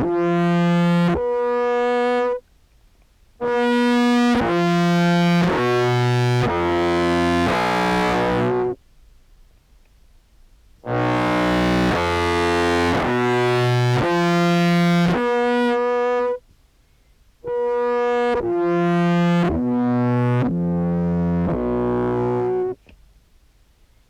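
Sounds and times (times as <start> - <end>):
distorted low clarinet notes: 0.0 - 2.4, 3.4 - 8.8, 10.8 - 16.4, 17.4 - 22.8.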